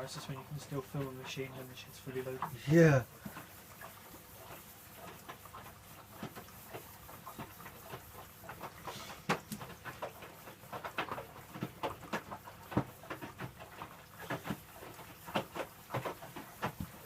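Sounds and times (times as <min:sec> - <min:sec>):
low hiss: 0:00.0 - 0:03.4
washing machine clicks and splashes: 0:00.0 - 0:17.0.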